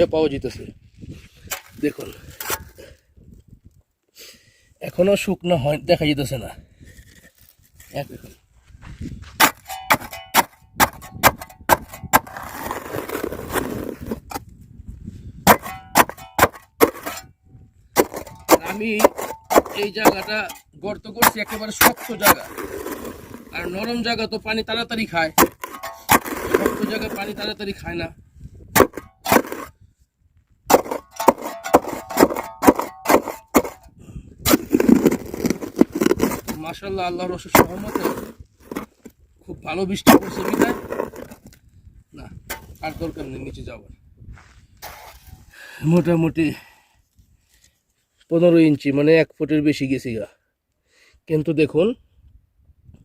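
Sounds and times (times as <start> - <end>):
shovel scraping: 1.2 - 2.9, 9.2 - 14.4, 15.5 - 17.3, 18.0 - 24.0, 25.4 - 27.6, 28.8 - 29.7, 30.7 - 36.8, 37.4 - 39.1, 40.0 - 41.5, 44.8 - 45.5
shovel striking packed ground: 1.4 - 2.7, 9.2 - 14.4, 15.4 - 17.3, 18.0 - 24.0, 25.2 - 27.6, 28.8 - 29.7, 30.7 - 39.0, 40.0 - 41.4, 42.5 - 43.1, 44.8 - 45.4.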